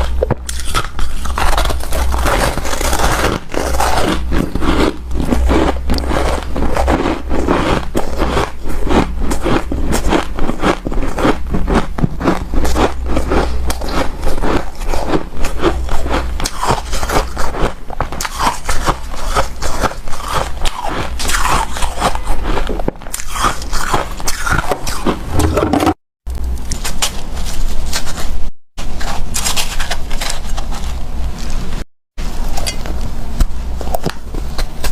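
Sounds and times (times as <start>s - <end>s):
crunching ice: 0.0s - 26.0s.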